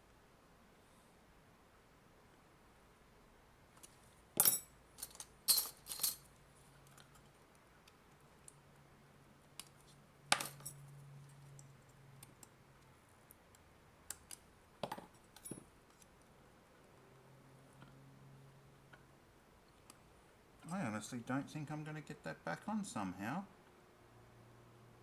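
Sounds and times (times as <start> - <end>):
metal tools clinking: 4.4 - 6.3.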